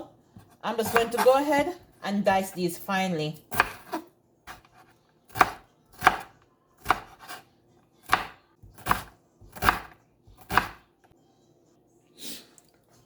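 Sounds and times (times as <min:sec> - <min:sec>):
knife chopping vegetables: 0:00.4 - 0:02.0, 0:03.5 - 0:07.4, 0:08.0 - 0:10.9.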